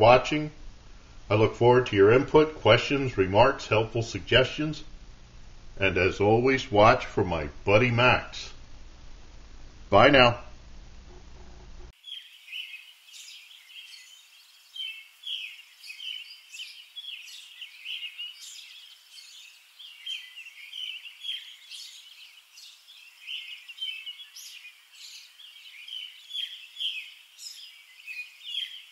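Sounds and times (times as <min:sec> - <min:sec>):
songbirds chirping and singing: 0:12.0 - 0:28.9.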